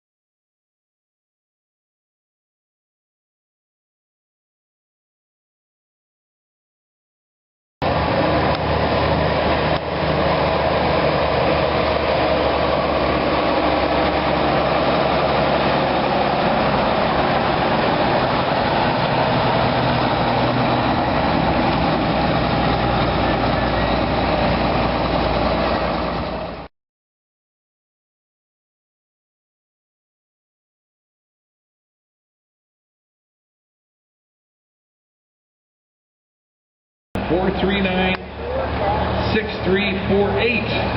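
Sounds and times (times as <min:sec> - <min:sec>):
truck diesel engine running: 0:07.8 - 0:26.7, 0:37.2 - 0:40.9.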